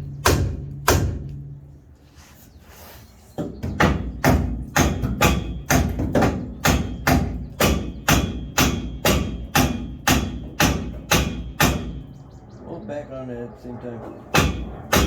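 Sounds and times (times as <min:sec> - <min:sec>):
hammer striking metal: 0:00.1 - 0:01.4, 0:03.8 - 0:12.2, 0:14.3 - 0:15.0.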